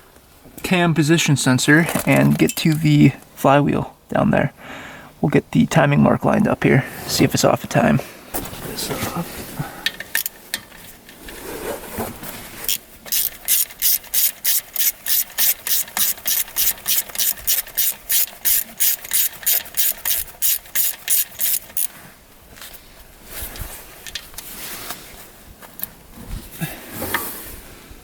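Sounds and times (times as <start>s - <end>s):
handling of parts: 1.8s - 3.0s, 8.4s - 27.4s
ratchet wrench clicking: 9.9s - 10.6s, 12.7s - 21.9s.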